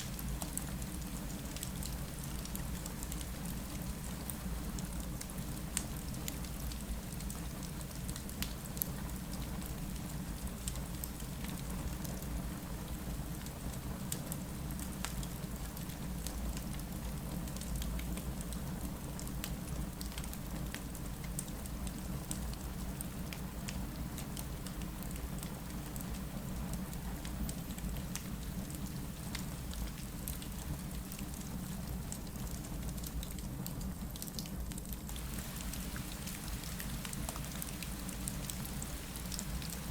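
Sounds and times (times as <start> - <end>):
rain against a window: 0.0 - 39.9
wood fire crackling: 35.1 - 39.9.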